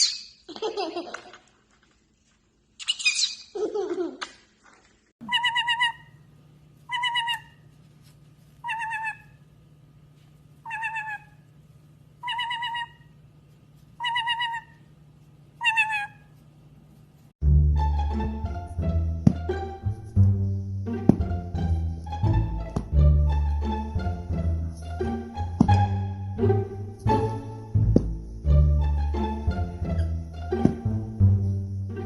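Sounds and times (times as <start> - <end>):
parrot squawking and warbling: 2.8 - 3.6, 5.2 - 6.2, 6.9 - 7.6, 8.6 - 9.4, 10.6 - 11.5, 12.2 - 13.2, 14.0 - 14.9, 15.6 - 16.4.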